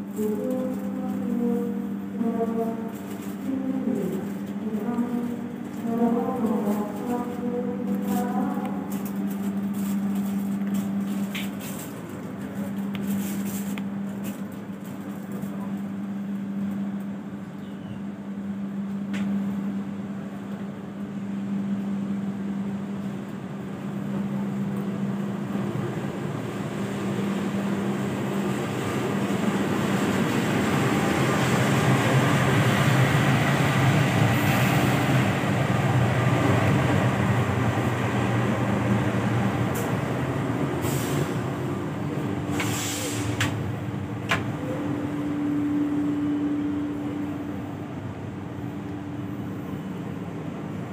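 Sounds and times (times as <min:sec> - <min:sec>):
passenger train running: 0:00.0 - 0:50.9
rail noise: 0:00.0 - 0:50.9.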